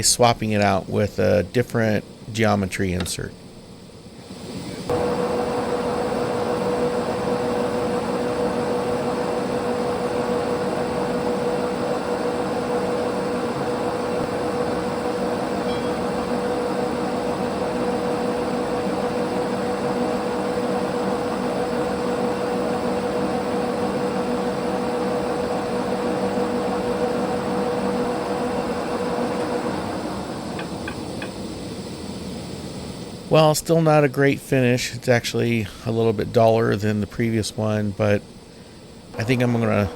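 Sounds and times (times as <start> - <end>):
metal lathe running: 4.8 - 31.5, 39.0 - 39.9.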